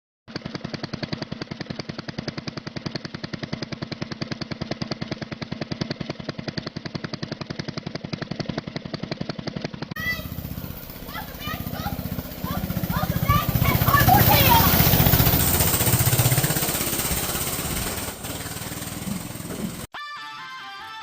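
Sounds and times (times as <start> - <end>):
small engine idling: 0.3 - 19.9.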